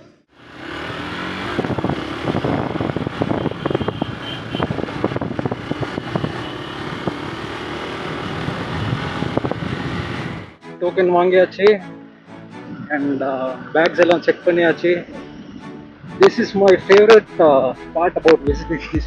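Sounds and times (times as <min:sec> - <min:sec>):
motorcycle engine running: 0:00.4 - 0:10.6
wind noise: 0:01.3 - 0:07.4, 0:08.1 - 0:10.6.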